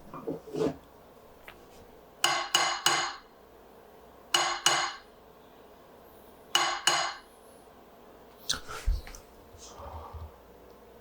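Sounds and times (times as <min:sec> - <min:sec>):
metal-on-metal taps: 0:04.3 - 0:05.0.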